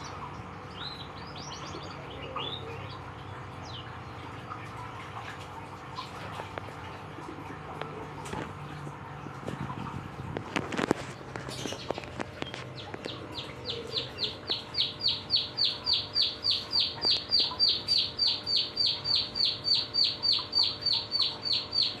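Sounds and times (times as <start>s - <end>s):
canary singing: 11.4s - 22.0s.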